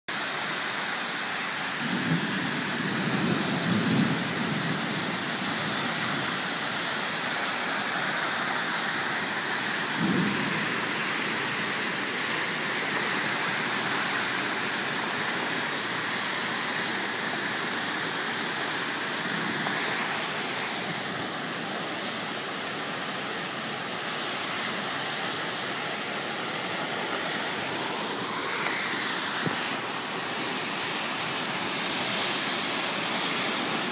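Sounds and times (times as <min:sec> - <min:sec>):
heavy rain pouring: 0:00.1 - 0:33.9
low thunder rumbles: 0:01.8 - 0:06.4, 0:09.8 - 0:16.1.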